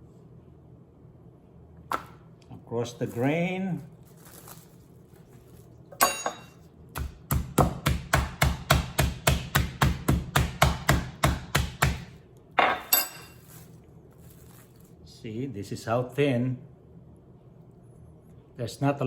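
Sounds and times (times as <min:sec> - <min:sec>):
plastic wrap crinkling: 0:02.8 - 0:05.9, 0:13.4 - 0:15.0
meat mallet pounding: 0:06.9 - 0:12.2.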